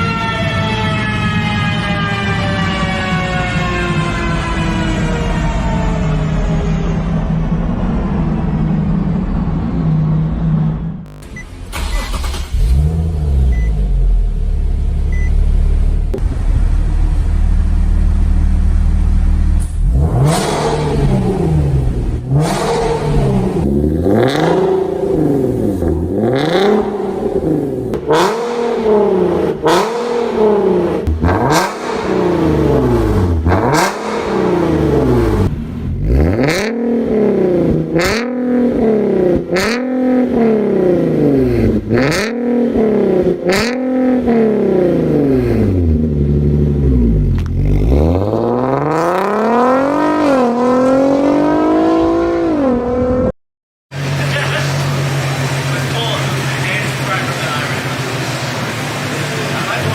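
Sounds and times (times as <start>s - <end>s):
car exhaust revving: 3.0s - 53.3s, 53.9s - 59.9s
exhaust cracks: 10.2s - 13.5s, 54.0s - 59.9s.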